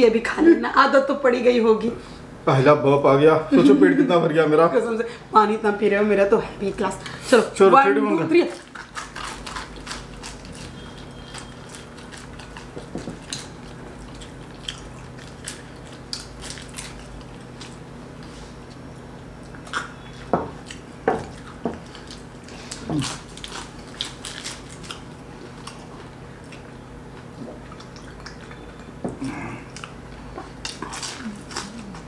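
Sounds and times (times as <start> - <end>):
faint steady hum: 0.0 - 32.0
people chewing and biting: 8.5 - 32.0.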